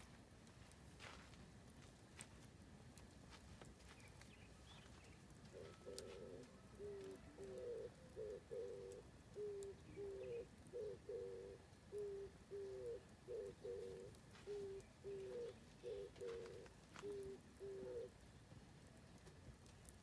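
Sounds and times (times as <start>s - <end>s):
campfire crackling: 0.0s - 20.0s
dove cooing: 5.5s - 18.3s.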